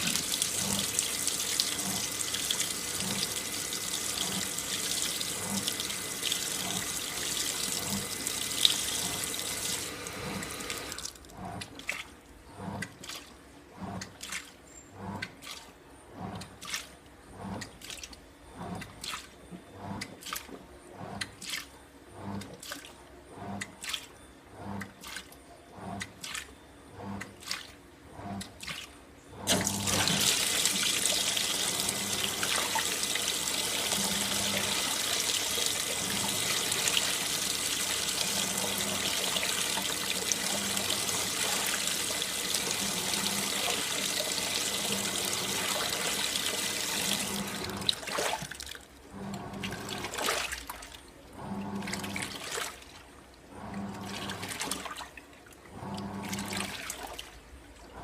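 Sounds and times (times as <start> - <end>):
water gushing into tub: 0.0 - 14.5, 29.4 - 58.0
washing machine swishing and thudding: 27.0 - 48.6, 49.2 - 55.2, 55.8 - 57.4.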